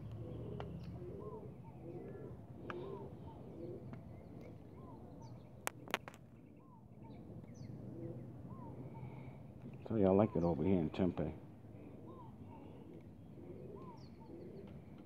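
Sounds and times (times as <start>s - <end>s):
birds calling: 0.0s - 15.0s
dove-like cooing: 0.0s - 15.0s
sharp clicks: 5.7s - 6.2s.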